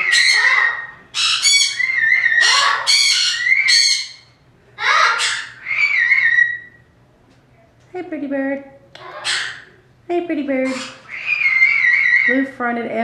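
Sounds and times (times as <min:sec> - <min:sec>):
parrot squawking: 0:00.0 - 0:06.8, 0:09.0 - 0:09.8, 0:10.6 - 0:12.5.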